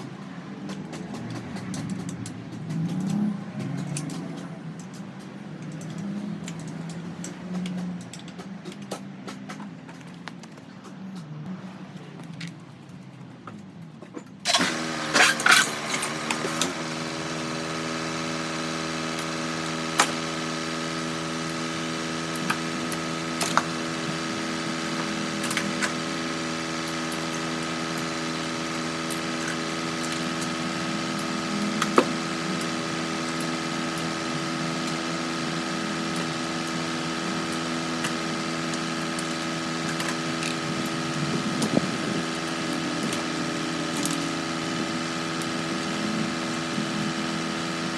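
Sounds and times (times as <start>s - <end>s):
motor humming: 14.5s - 47.9s.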